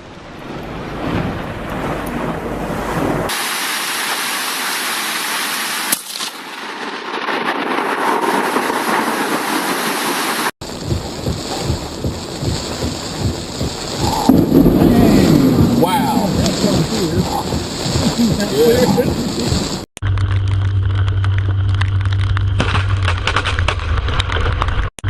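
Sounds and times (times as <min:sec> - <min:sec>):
heavy rain: 0:00.0 - 0:19.9
wind buffeting microphone: 0:10.7 - 0:19.9.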